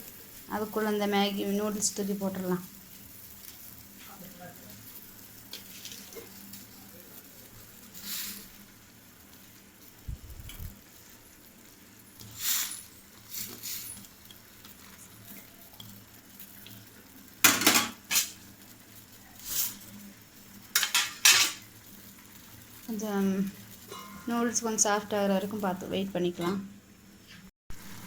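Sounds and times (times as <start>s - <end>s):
metal spoon scraping a pan: 17.4s - 18.4s, 19.4s - 19.9s, 20.7s - 21.7s, 23.9s - 24.3s.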